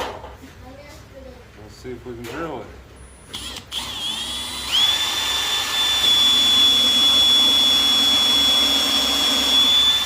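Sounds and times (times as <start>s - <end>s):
power drill whining: 3.3s - 10.0s.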